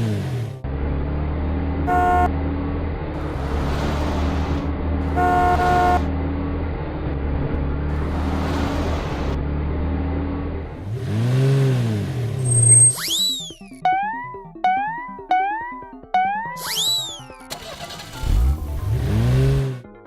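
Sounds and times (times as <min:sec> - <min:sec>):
cartoon horn toot: 0:01.9 - 0:02.3, 0:05.1 - 0:06.1
quick rising whistle: 0:12.5 - 0:13.7, 0:16.6 - 0:17.4
pitch-bending sound effect: 0:12.6 - 0:18.7
cartoon engine drone: 0:12.9 - 0:18.0.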